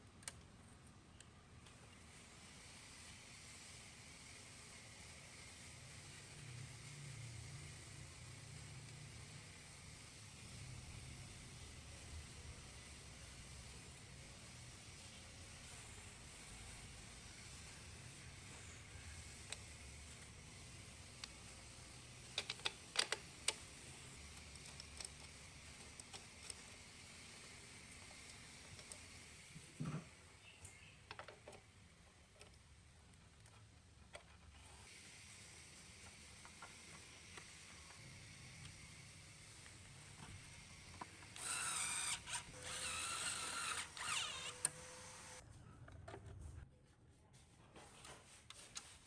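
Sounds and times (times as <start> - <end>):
small electric power tool whining: 41.0 - 45.4.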